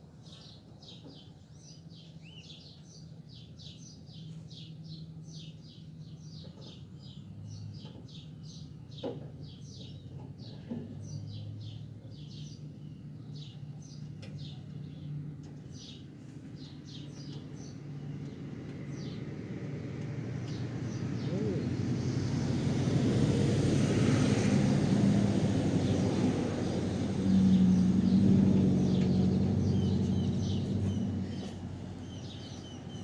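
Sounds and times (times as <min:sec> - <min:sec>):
small birds chirping: 0:00.2 - 0:33.0
vehicle noise: 0:17.4 - 0:33.0.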